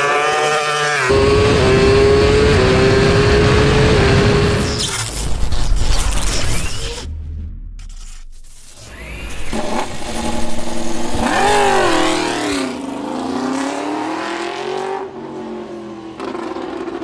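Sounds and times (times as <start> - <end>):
racing motorcycle engine revving: 0.0 - 4.7, 8.9 - 17.0.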